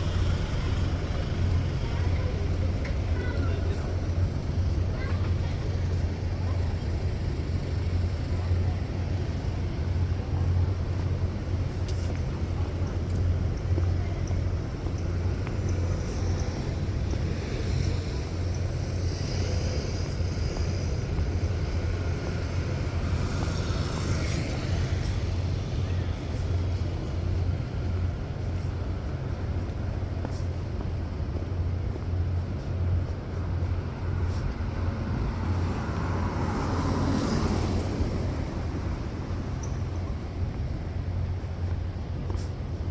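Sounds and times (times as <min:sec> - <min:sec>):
rumble of traffic: 0:00.0 - 0:42.9
vehicle passing: 0:34.0 - 0:40.8.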